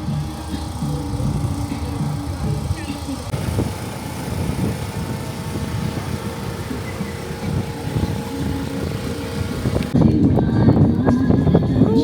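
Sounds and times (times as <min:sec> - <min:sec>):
car road rumble: 0:00.0 - 0:12.0
hiss of tyres and rain: 0:02.8 - 0:10.0.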